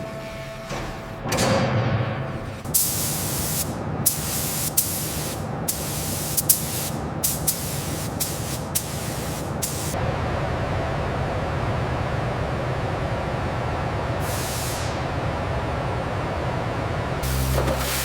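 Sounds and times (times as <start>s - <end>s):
compressed air hissing bursts: 2.7s - 10.0s, 14.2s - 15.0s, 17.2s - 18.0s.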